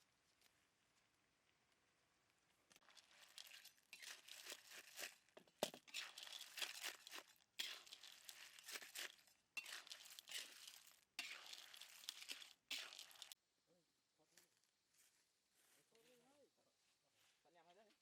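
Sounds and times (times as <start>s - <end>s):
crackling and crunching: 0.0s - 13.4s.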